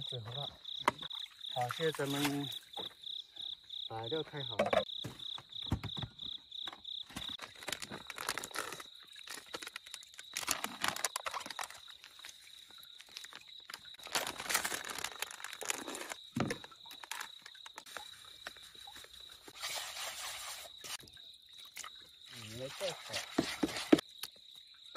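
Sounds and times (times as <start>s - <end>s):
high insect trill: 0.0s - 24.9s
bait bag crinkling and rustling: 7.1s - 19.4s.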